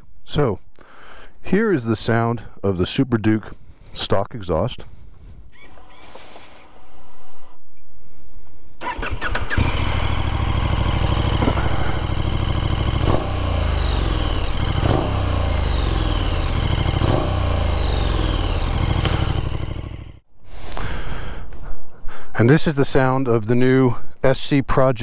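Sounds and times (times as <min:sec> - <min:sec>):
motorcycle engine idling and revving: 0:08.8 - 0:20.2.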